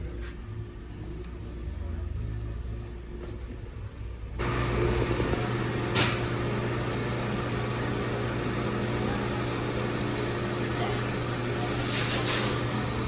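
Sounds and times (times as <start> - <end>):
ice machine humming: 4.4 - 13.0.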